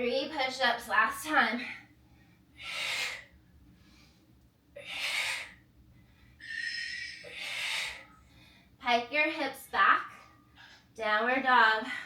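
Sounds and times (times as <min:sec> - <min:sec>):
woman breathing heavily: 0:01.4 - 0:08.8, 0:09.8 - 0:12.0.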